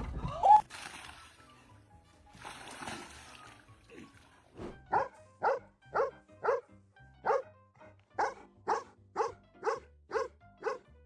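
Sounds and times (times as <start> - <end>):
dog barking: 4.9 - 7.4, 8.2 - 10.8.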